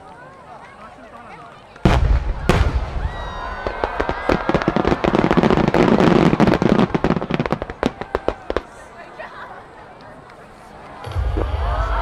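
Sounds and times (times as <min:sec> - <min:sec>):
fireworks crackling pops: 0:00.0 - 0:08.9.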